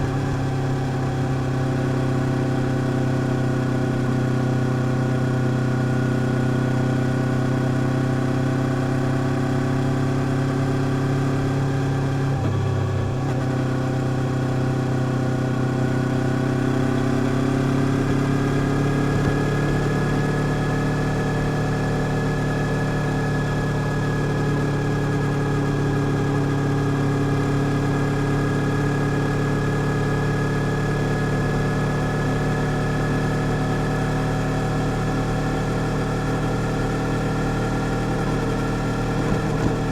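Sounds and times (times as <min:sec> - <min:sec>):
vehicle engine running: 0:08.6 - 0:39.9.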